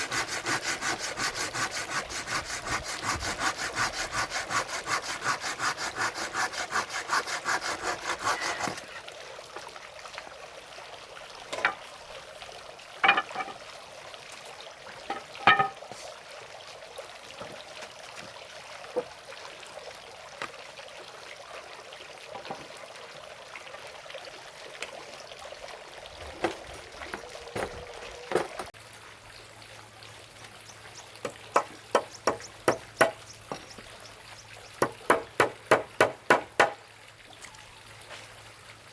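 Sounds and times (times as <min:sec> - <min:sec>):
hand saw cutting wood: 0:00.0 - 0:09.0, 0:31.5 - 0:33.2, 0:34.8 - 0:36.8.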